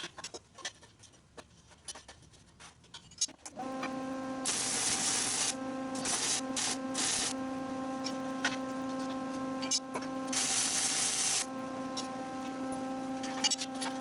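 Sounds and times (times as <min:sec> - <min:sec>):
welder electrical hum: 0:03.5 - 0:14.0
welding arc crackling and hissing: 0:04.4 - 0:07.4, 0:08.0 - 0:12.1.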